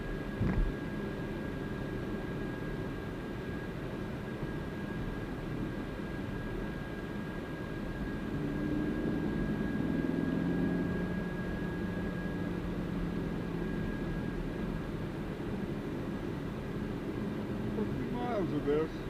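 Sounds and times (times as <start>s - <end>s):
car engine hum: 5.2s - 19.0s
road noise: 7.7s - 19.0s.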